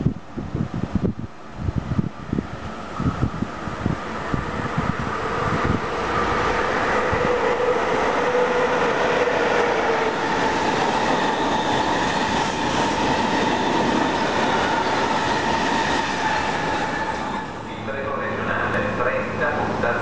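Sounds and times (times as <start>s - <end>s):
train wheels rushing on rails: 3.0s - 17.7s.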